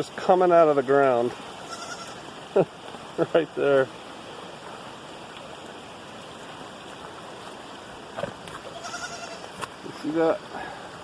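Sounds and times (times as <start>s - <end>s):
water rushing: 0.0s - 11.0s
goat bleating: 1.6s - 2.2s, 8.7s - 9.6s.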